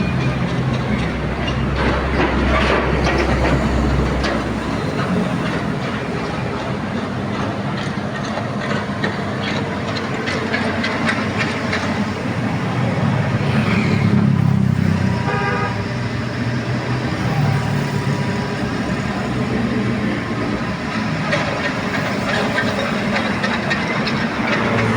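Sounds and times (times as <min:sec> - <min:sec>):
excavator diesel engine: 0:00.0 - 0:24.9.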